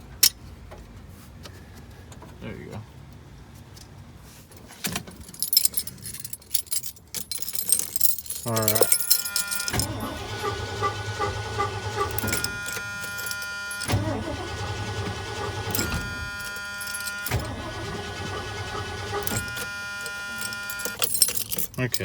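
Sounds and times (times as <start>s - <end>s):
truck starter cranking engine: 7.5s - 22.0s.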